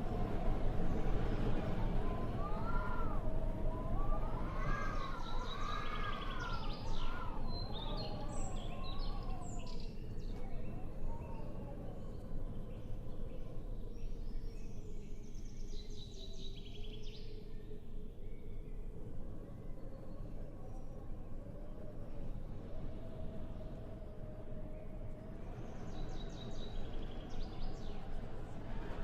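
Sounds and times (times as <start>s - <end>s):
small birds chirping and trilling: 4.1s - 21.1s, 24.8s - 28.8s.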